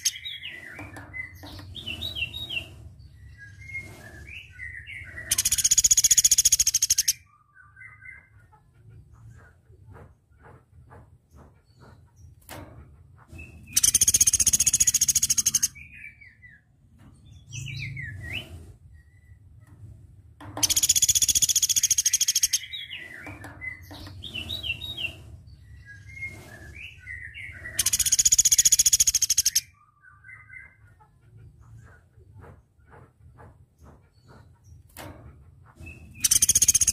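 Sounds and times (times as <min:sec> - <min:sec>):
bird high-pitched trills: 0:20.6 - 0:23.0, 0:26.8 - 0:30.7, 0:36.2 - 0:36.9.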